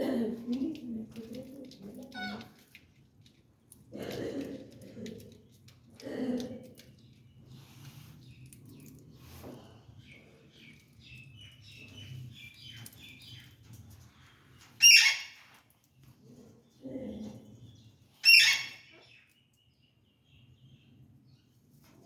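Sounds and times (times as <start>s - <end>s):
parakeet chirping: 14.8s - 15.2s, 18.2s - 18.8s
parakeet squawks: 14.8s - 15.3s, 18.2s - 18.8s.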